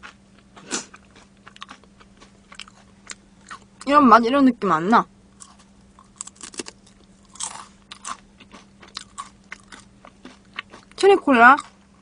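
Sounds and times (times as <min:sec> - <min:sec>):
person chewing crispy chicken: 0:00.0 - 0:03.8, 0:05.4 - 0:11.0.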